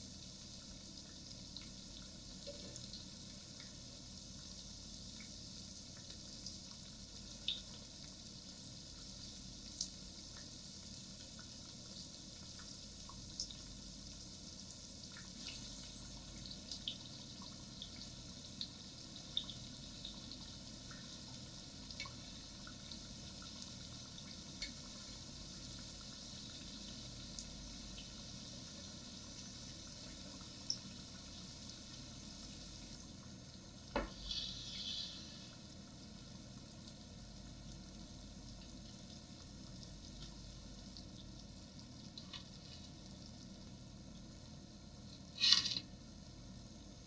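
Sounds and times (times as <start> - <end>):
food sizzling in a pan: 0.0 - 46.3
scraping stir: 34.1 - 35.4, 45.4 - 45.8.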